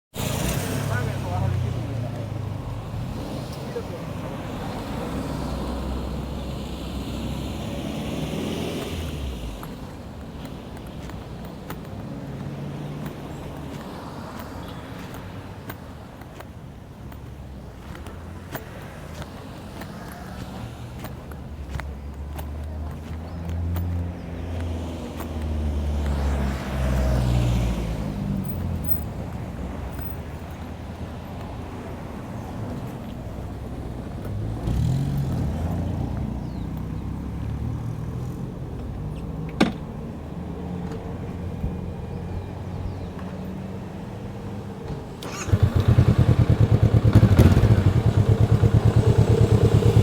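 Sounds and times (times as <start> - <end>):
motorcycle engine running: 45.2 - 50.0.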